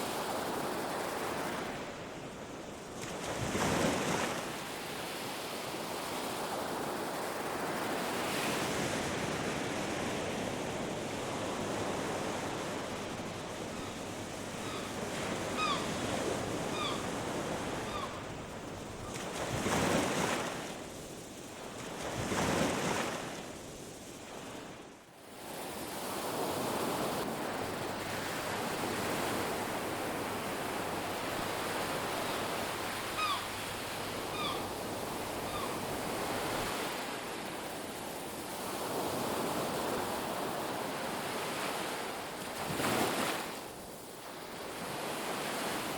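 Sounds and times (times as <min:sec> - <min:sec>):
surf washing on beach: 0:00.0 - 0:45.9
waves crashing: 0:26.1 - 0:37.5.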